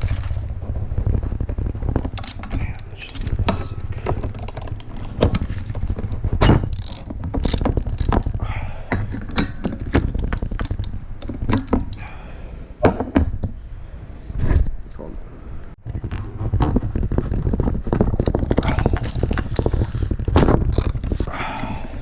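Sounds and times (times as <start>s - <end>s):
metal parts clicking and knocking: 0.0s - 12.1s, 15.8s - 21.7s
steady low rumble: 0.0s - 12.8s.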